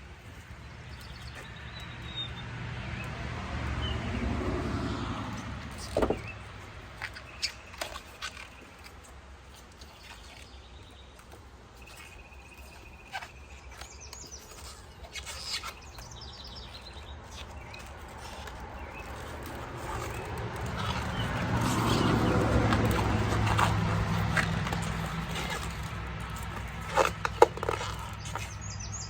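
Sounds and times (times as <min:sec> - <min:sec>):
small birds chirping: 0:00.3 - 0:03.2, 0:09.7 - 0:29.0.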